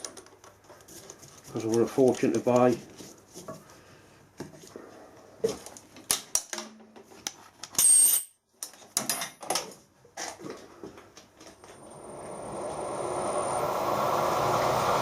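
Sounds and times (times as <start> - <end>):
metal tools clinking: 7.7 - 9.5.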